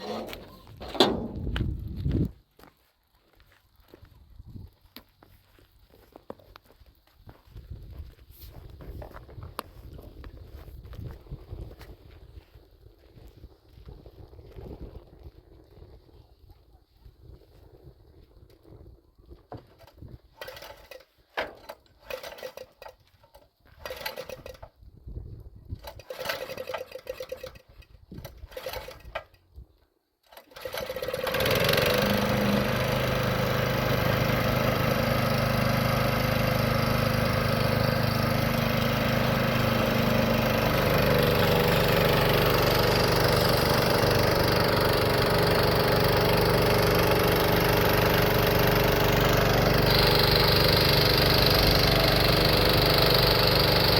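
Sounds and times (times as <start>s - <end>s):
engine starting and idling: 0.0s - 1.6s, 20.3s - 24.7s, 25.8s - 29.4s, 30.2s - 53.9s.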